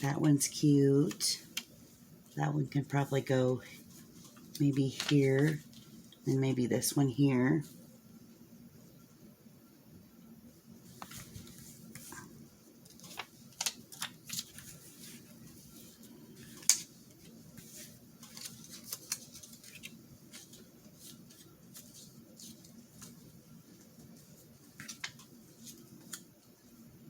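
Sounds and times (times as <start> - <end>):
paper rustling: 3.0 - 6.3, 10.8 - 26.8.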